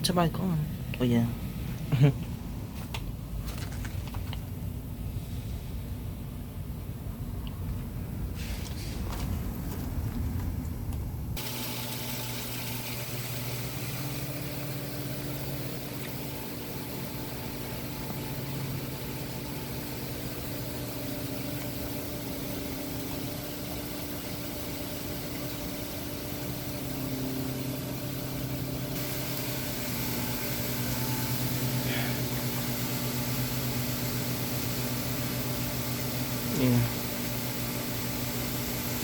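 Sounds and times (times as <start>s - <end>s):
air conditioner compressor hum: 0.0s - 39.0s
air conditioner fan rushing: 0.0s - 39.0s.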